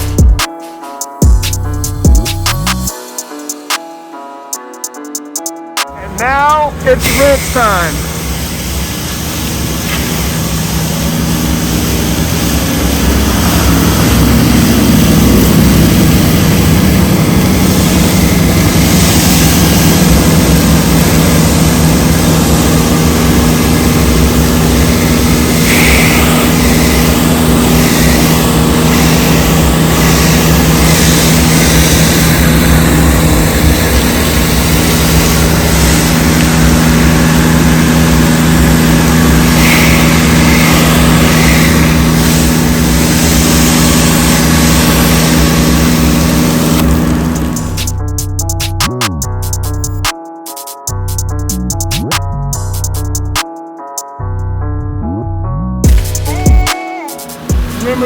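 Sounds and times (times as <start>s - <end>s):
engine running under load: 6.0s - 48.4s
spray hissing: 6.0s - 48.5s, 55.9s - 58.0s.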